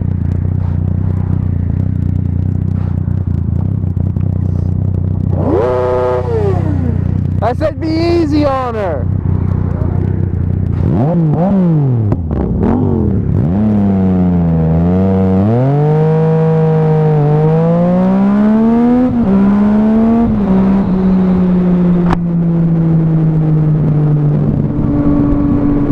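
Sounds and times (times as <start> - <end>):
motorcycle engine accelerating: 0.0 - 25.9
sharp tick: 9.0 - 10.8.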